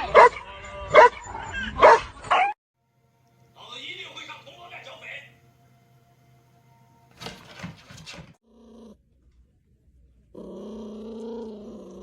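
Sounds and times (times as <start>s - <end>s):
dog growling: 8.4s - 9.0s, 10.3s - 12.0s.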